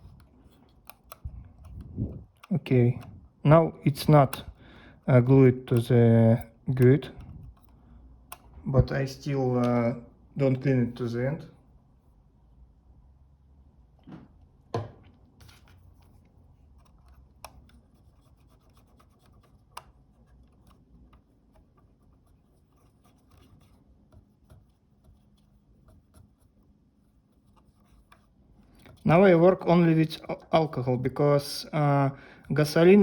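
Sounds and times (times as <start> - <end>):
stick scratching and rubbing: 15.4 - 30.6.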